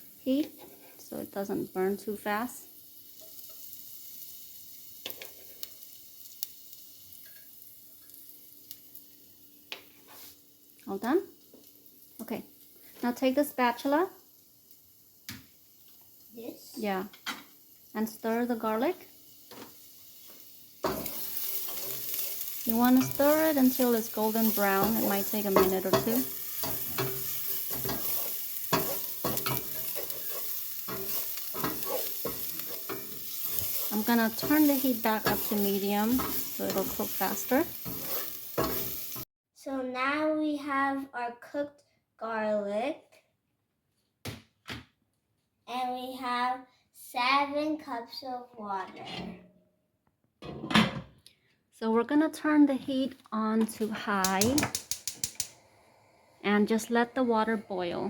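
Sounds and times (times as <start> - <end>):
garlic sizzling in hot oil: 0.0 - 39.3, 52.9 - 55.6, 56.4 - 58.0
spatula scraping and tapping pot: 0.4 - 1.0, 19.5 - 39.2, 53.6 - 55.6.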